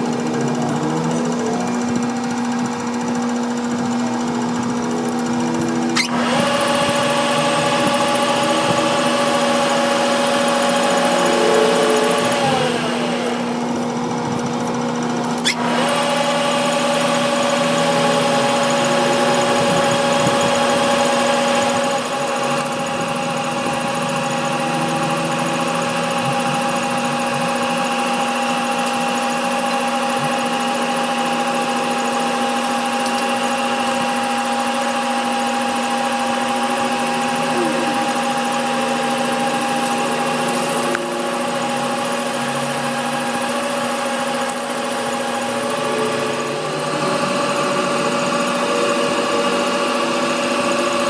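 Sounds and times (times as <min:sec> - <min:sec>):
machine tool motor humming: 0:00.0 - 0:51.0.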